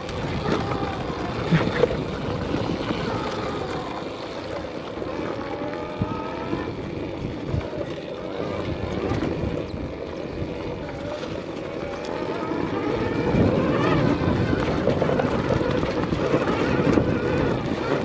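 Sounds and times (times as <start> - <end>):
electric dirt bike motor whining: 0.0 - 18.0
rumbling trail noise: 0.0 - 18.0.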